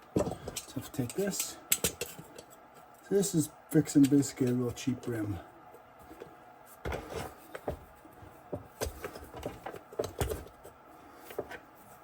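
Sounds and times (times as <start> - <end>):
light knocks and clicks of parts: 8.5 - 11.6.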